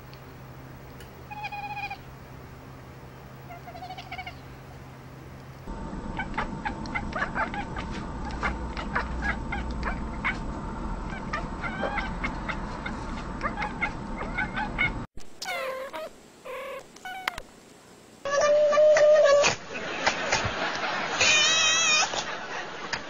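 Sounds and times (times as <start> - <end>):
cats meowing: 1.3 - 2.0, 3.5 - 4.4, 11.1 - 17.4, 21.2 - 22.2
cat chattering chirps and clicks: 6.2 - 10.4.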